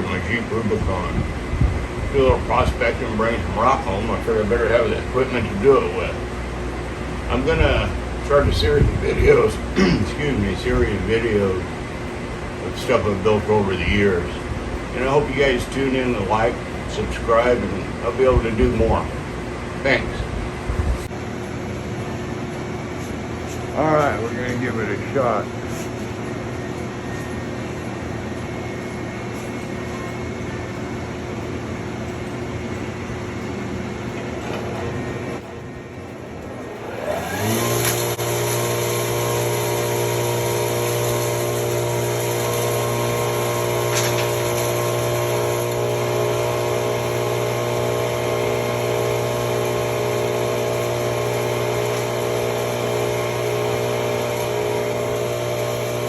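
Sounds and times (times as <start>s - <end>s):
hammer mill spinning up with whine: 0.0s - 56.0s
machine hum: 0.0s - 56.0s.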